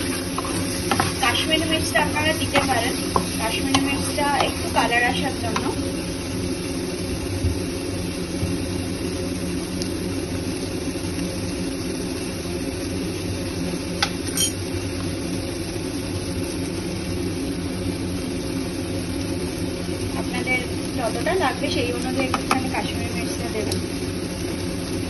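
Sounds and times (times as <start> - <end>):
kitchen appliance humming: 0.0 - 25.0
utensil clinking on pot: 14.0 - 14.6.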